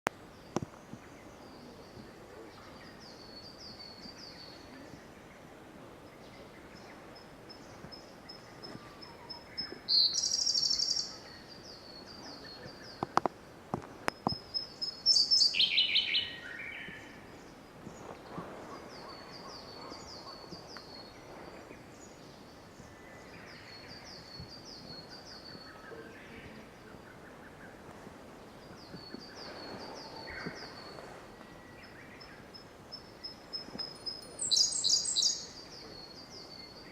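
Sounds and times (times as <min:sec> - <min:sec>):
bird singing with fast trill: 0:06.2 - 0:13.0, 0:14.3 - 0:17.2, 0:28.6 - 0:36.9.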